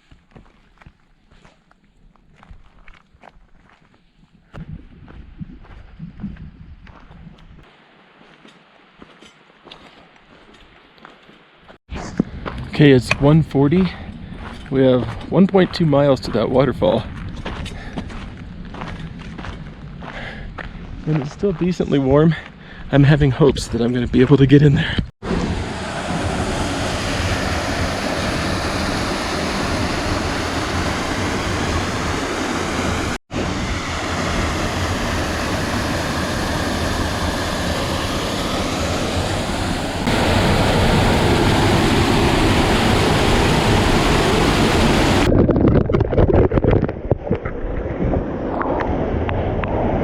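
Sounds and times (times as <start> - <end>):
waterfall rushing: 25.3 - 45.3.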